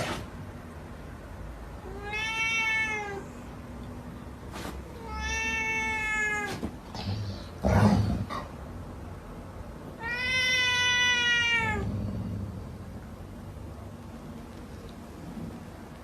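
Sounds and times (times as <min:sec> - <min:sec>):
cat meowing: 0:01.8 - 0:03.4, 0:05.0 - 0:07.6, 0:10.0 - 0:11.9.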